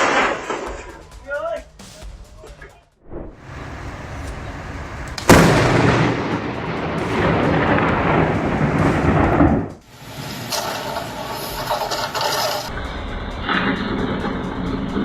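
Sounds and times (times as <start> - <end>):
thunder crack and rumble: 3.3 - 9.9, 12.7 - 15.0.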